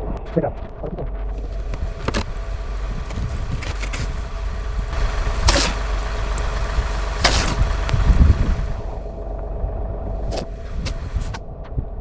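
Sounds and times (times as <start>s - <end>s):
low engine hum: 1.0s - 12.0s
snow shovel scraping snow: 1.4s - 8.9s.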